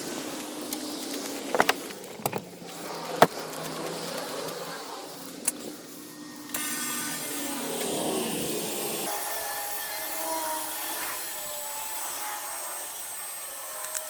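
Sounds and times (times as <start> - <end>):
winch clicks and clunks: 1.5 - 2.6.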